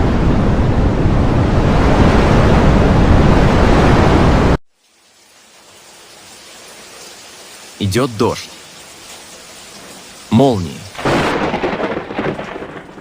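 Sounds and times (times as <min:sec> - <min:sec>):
wind rushing: 0:00.0 - 0:04.6
faint hiss: 0:04.8 - 0:11.0.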